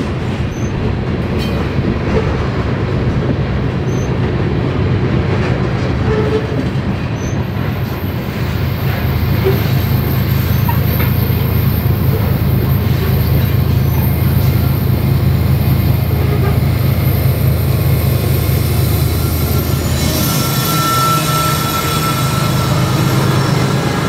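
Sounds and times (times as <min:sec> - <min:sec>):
freight train rumbling: 0:00.0 - 0:24.0
high wheel squeal: 0:07.2 - 0:15.0, 0:15.6 - 0:24.0.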